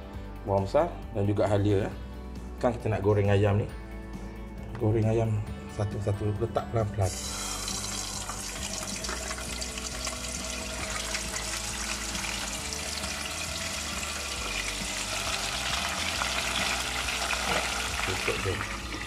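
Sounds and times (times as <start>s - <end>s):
chicken deep-frying in oil: 7.4s - 19.0s.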